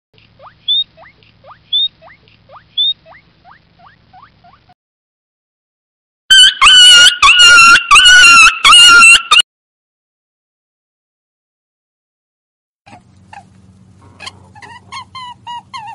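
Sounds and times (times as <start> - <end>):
otters chirping: 0.2 - 4.8
puppy whining: 12.9 - 15.9.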